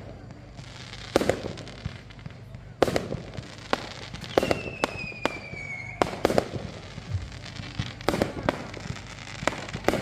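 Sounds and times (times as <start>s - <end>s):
fireworks bangs: 0.0s - 10.0s
falling firework whistle: 4.1s - 10.0s.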